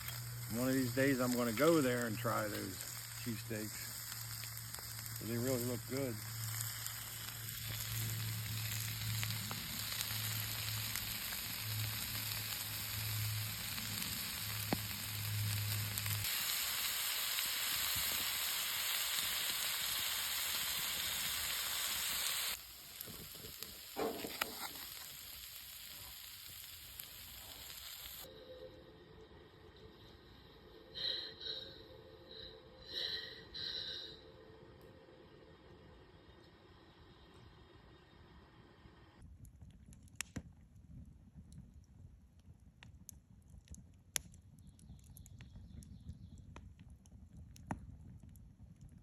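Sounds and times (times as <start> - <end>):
meat sizzling in a pan: 0.0 - 28.3
low hum: 28.2 - 39.2.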